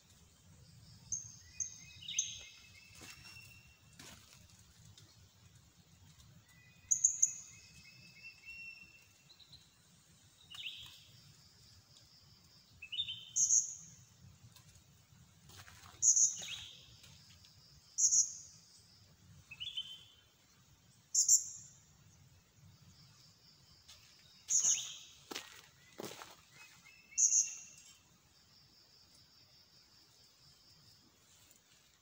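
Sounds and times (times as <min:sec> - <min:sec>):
small birds chirping: 0:00.0 - 0:32.0
thin whistled bird notes: 0:24.4 - 0:28.0.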